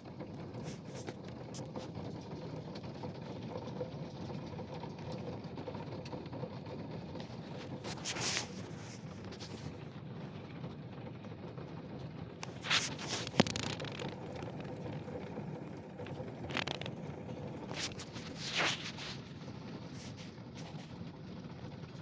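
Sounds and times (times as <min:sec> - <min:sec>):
rain pattering: 0:08.6 - 0:18.3.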